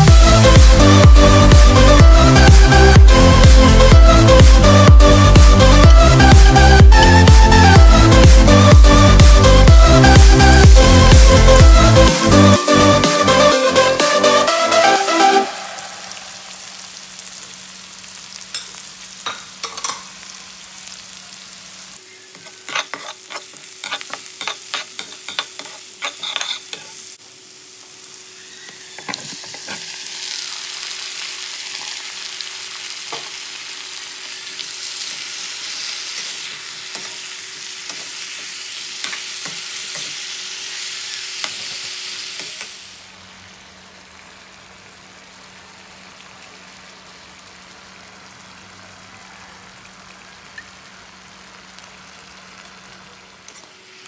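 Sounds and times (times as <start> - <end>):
food sizzling in a wok: 0.0 - 54.0
wok stirring clicks and scrapes: 22.3 - 27.2, 29.0 - 30.1, 36.1 - 40.2, 41.4 - 42.8, 53.5 - 53.8.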